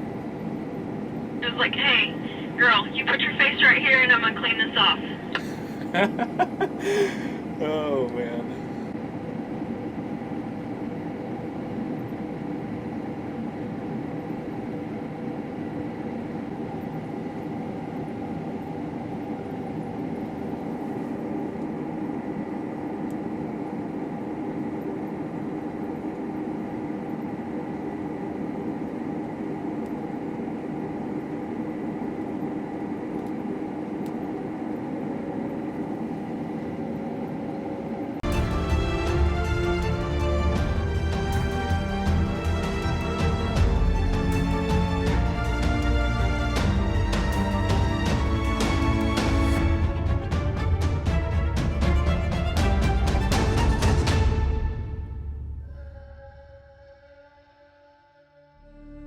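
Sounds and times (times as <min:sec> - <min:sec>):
combine harvester running: 0:01.4 - 0:06.4, 0:38.2 - 0:54.6.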